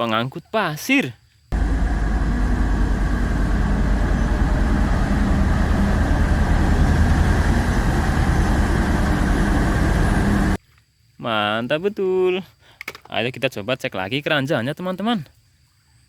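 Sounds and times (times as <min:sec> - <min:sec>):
truck engine idling: 0:01.5 - 0:10.6.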